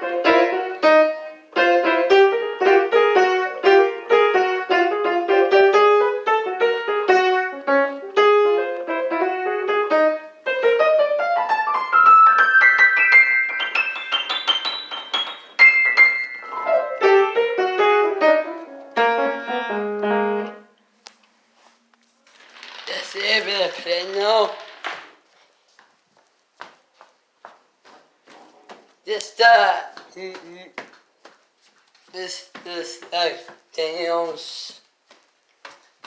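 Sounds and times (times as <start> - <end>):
piano music: 0.0 - 20.8.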